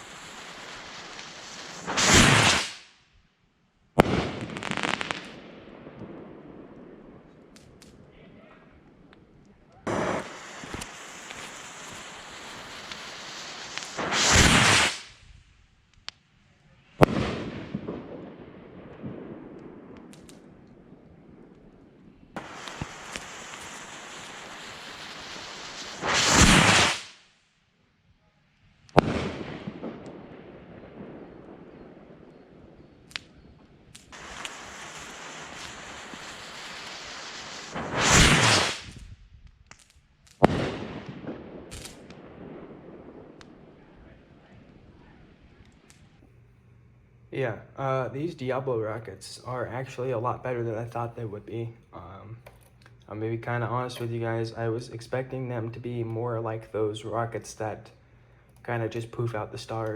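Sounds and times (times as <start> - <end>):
firework bang: 0.0 - 3.0, 4.0 - 8.0, 9.8 - 15.4, 17.0 - 21.6, 22.3 - 27.3, 28.9 - 46.3
firework rocket rushing: 0.0 - 3.0, 4.0 - 8.0, 9.8 - 15.6, 16.9 - 21.6, 22.3 - 27.4, 28.9 - 46.2
firework crackling: 0.0 - 3.2, 4.0 - 27.5, 28.6 - 59.9.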